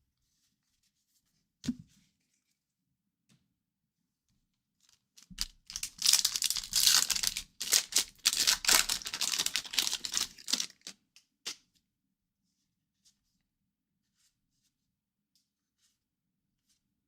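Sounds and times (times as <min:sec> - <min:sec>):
wrapper tearing and crinkling: 0:05.2 - 0:10.9.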